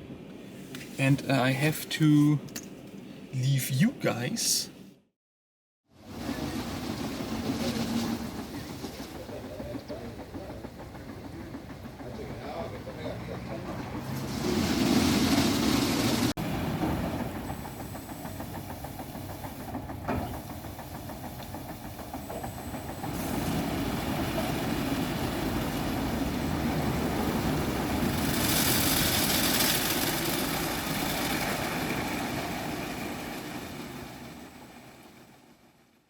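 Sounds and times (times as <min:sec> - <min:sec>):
car wash machinery drone: 0:22.3 - 0:35.5.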